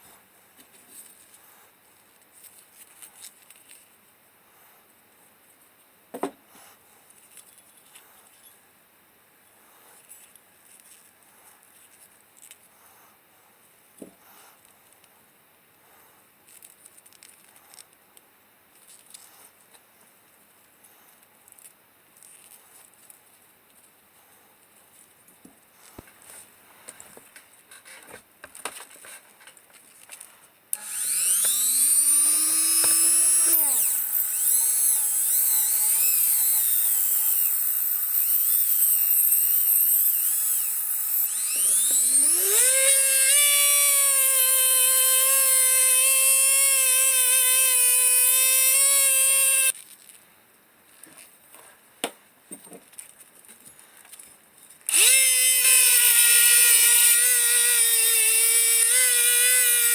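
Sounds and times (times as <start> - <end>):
electric power tool whining: 30.8 - 49.8, 54.9 - 59.9.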